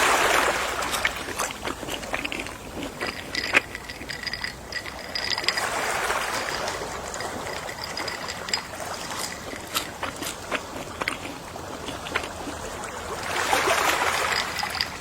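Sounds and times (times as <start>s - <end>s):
sea waves lapping: 0.0s - 15.0s
small irregular clicks: 6.4s - 12.6s.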